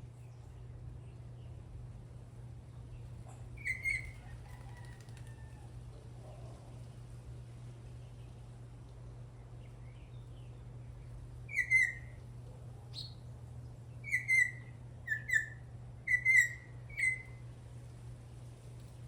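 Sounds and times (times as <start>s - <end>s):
steady low hum: 0.0s - 4.5s, 5.5s - 19.0s
bird whistled song: 3.6s - 4.2s, 11.5s - 12.2s, 12.9s - 13.2s, 14.0s - 17.4s.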